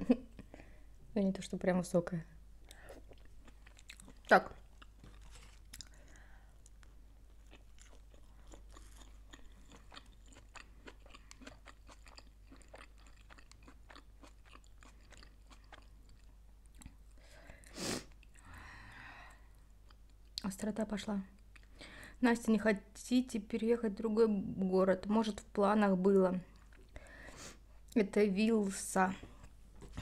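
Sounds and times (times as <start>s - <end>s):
soft crunching of food chewing: 2.6s - 18.5s, 19.1s - 22.0s, 26.1s - 28.0s.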